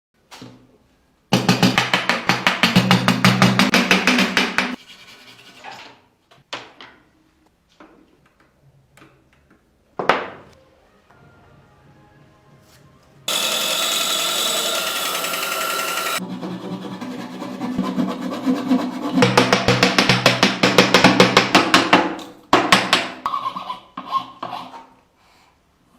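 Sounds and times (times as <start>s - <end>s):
power tool running: 13.3s - 16.2s.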